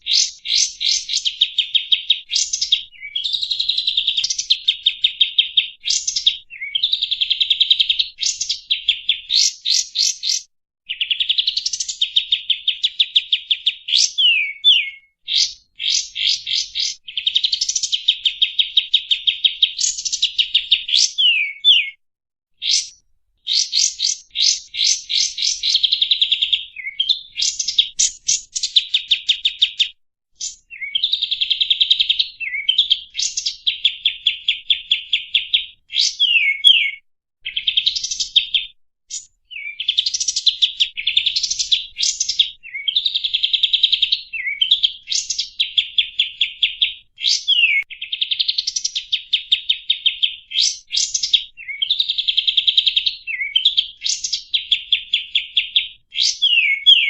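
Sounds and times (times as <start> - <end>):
downward-sliding bird whistles: 13.9 - 17.6, 20.5 - 22.0, 34.2 - 37.0, 47.2 - 47.8, 56.2 - 57.0.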